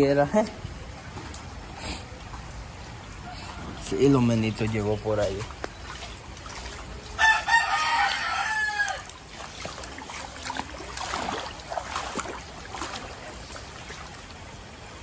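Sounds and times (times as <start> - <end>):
rooster crowing: 7.2 - 9.1.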